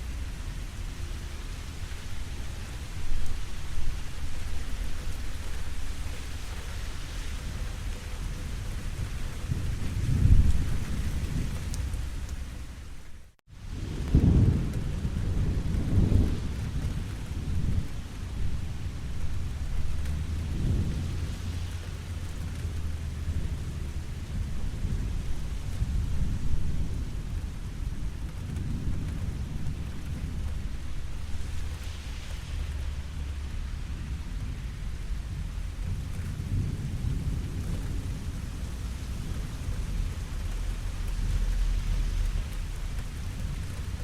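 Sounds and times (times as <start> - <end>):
steady rain: 0.0 - 44.0
rolling thunder: 0.1 - 12.7, 13.6 - 44.0.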